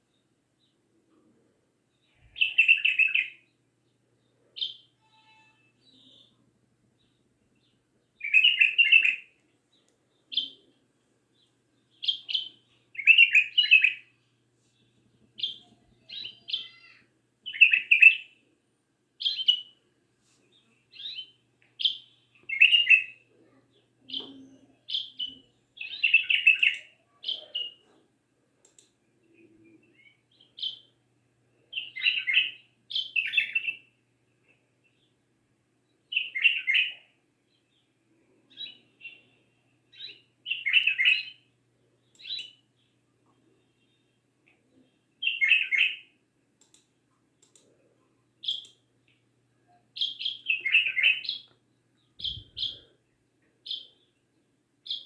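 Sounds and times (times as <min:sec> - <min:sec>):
songbird chirping and whistling: 0:02.2 - 0:03.4, 0:08.2 - 0:09.3, 0:11.9 - 0:14.1, 0:15.4 - 0:18.4, 0:19.2 - 0:19.8, 0:20.9 - 0:23.2, 0:24.1 - 0:27.8, 0:29.9 - 0:30.9, 0:31.7 - 0:33.9, 0:36.1 - 0:37.1, 0:39.9 - 0:41.4, 0:42.2 - 0:42.6, 0:45.2 - 0:46.1, 0:48.4 - 0:48.7, 0:49.7 - 0:52.9, 0:53.7 - 0:54.0.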